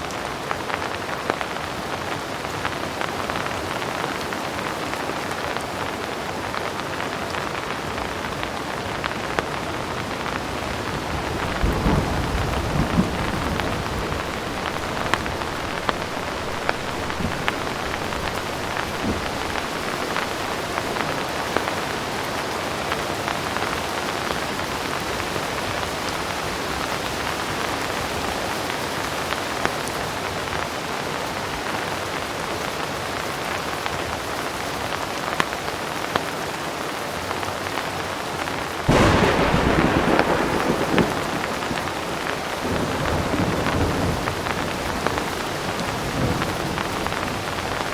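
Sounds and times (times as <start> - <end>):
heavy rain falling: 0.0 - 47.9
distant thunder rumbling: 10.4 - 21.8, 38.9 - 47.9.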